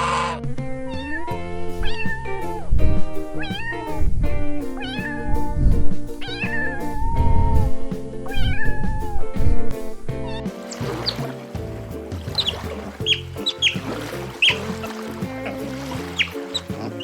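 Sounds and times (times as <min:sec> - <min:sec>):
cat meowing: 0:00.0 - 0:02.1, 0:04.8 - 0:05.4, 0:06.2 - 0:06.8
background music with steady beat: 0:00.4 - 0:17.0.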